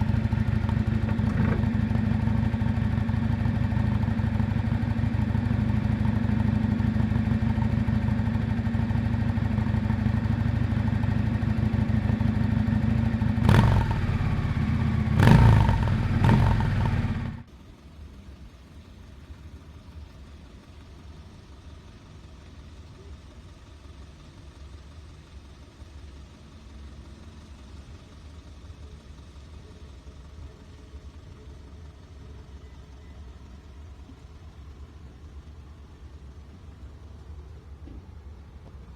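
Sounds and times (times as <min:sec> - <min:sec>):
motorcycle engine running: 0:00.0 - 0:17.5.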